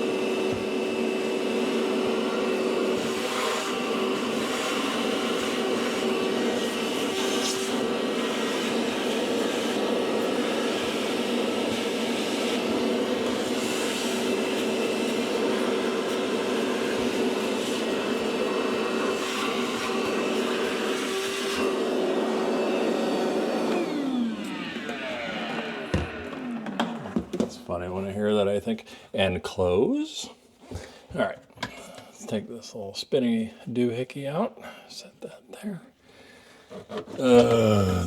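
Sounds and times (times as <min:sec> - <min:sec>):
vacuum cleaner running: 0:00.0 - 0:28.0, 0:36.9 - 0:38.0.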